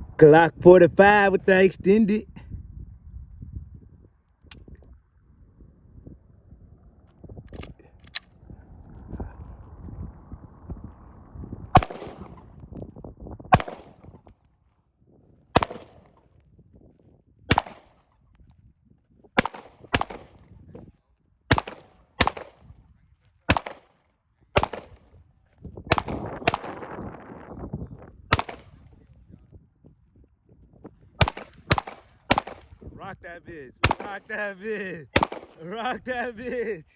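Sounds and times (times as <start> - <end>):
pistol shots: 11.7 - 12.5, 13.5 - 14.2, 15.5 - 16.2, 17.5 - 18.1, 19.4 - 20.5, 21.5 - 22.7, 23.5 - 24.0, 24.6 - 25.1, 25.9 - 26.9, 28.3 - 28.9, 31.2 - 32.8, 33.8 - 34.5, 35.1 - 35.8.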